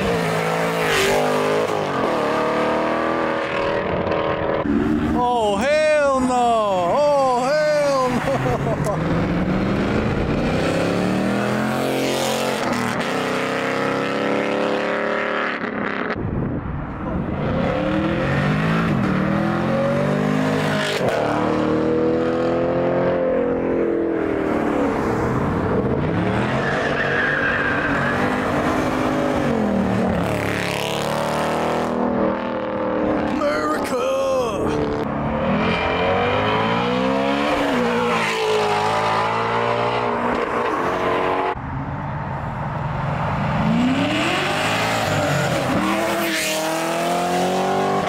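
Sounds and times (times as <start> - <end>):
engines revving through gears: 0.0 - 5.1, 8.2 - 16.1, 17.4 - 25.2, 25.8 - 33.5, 34.7 - 41.6, 43.5 - 48.0
cars accelerating past: 17.2 - 33.4, 34.7 - 48.0.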